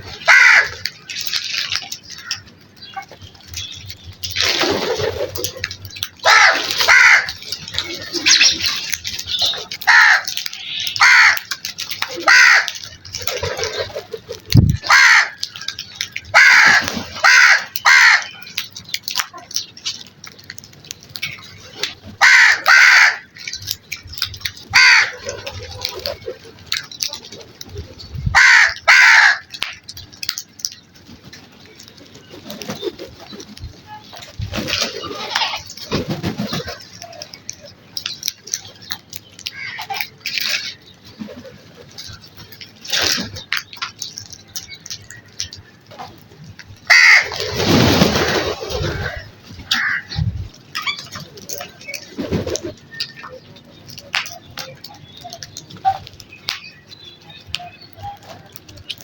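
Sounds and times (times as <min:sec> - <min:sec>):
crows cawing: 0:00.1 - 0:02.5, 0:06.2 - 0:08.4, 0:09.7 - 0:13.0, 0:14.8 - 0:18.5, 0:22.2 - 0:23.6, 0:24.6 - 0:25.4, 0:28.3 - 0:29.7, 0:39.5 - 0:40.8, 0:46.9 - 0:47.4, 0:48.9 - 0:50.2.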